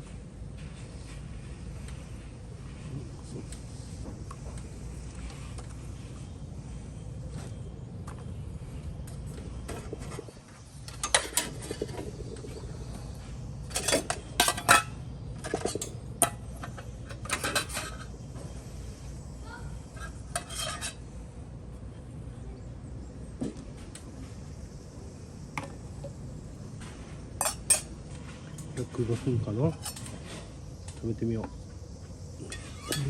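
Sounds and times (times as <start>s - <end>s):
utensils clinking against cookware: 10.9s - 12.7s, 13.7s - 18.1s, 19.9s - 21.0s, 27.4s - 27.9s, 29.7s - 30.4s, 32.4s - 33.0s.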